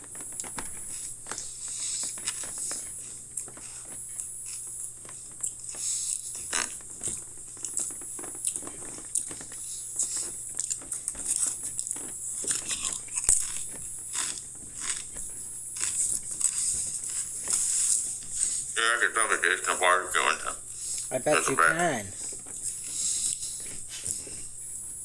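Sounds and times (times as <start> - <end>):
person chewing crisps: 0.4 - 18.8.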